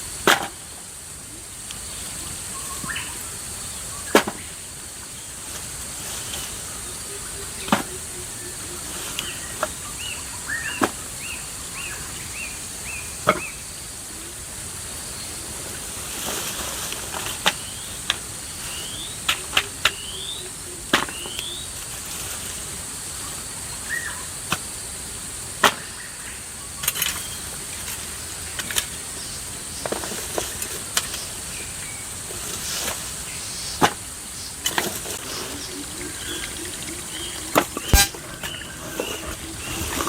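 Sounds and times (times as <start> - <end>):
high insect-like whine: 0.0 - 40.0
rising high-pitched chirps: 35.2 - 40.0.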